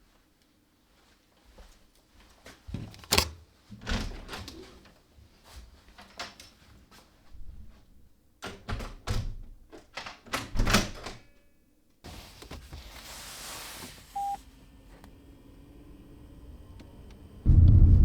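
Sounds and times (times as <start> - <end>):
short high beep: 14.2 - 14.4.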